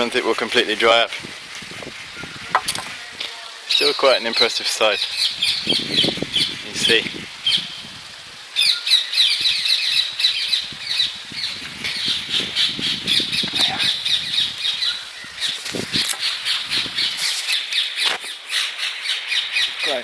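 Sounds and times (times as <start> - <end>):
birds calling: 0.0 - 20.0.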